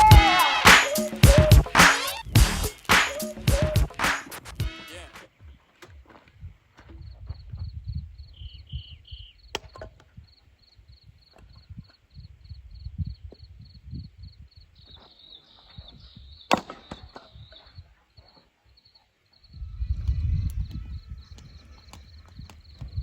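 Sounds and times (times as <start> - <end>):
cricket chirping: 7.0 - 23.0
sharp knocks: 16.5 - 17.3.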